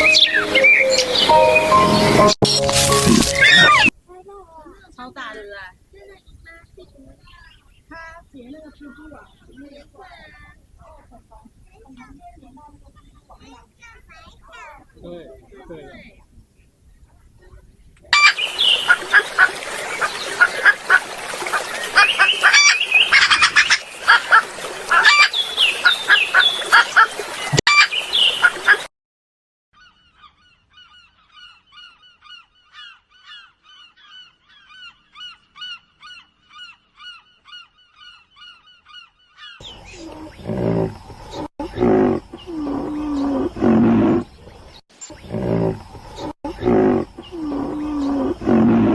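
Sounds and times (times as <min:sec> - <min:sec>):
waterfowl honking: 0:00.0 - 0:03.9, 0:18.2 - 0:28.8
low-pitched animal calls: 0:03.0 - 0:03.9, 0:39.6 - 0:48.9.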